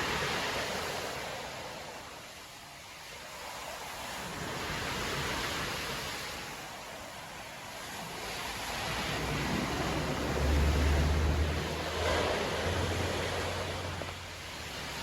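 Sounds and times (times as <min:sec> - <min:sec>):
waves breaking on beach: 0:00.0 - 0:15.0.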